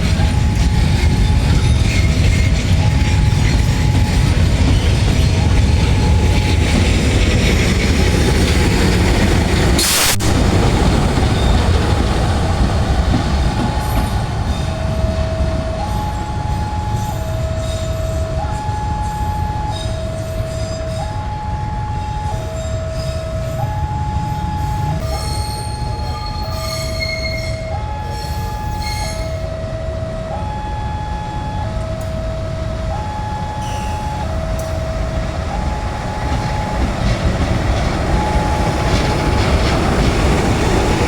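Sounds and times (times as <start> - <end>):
train passing with heavy rumble: 0.0 - 41.0
two-note warning tone: 13.6 - 37.2.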